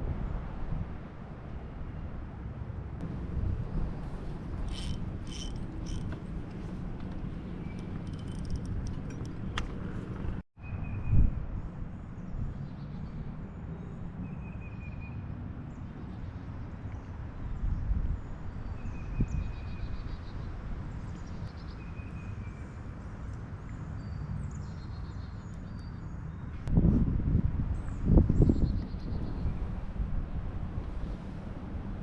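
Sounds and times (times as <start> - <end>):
wind buffeting microphone: 3.0 - 12.6, 17.2 - 21.0, 26.6 - 32.0.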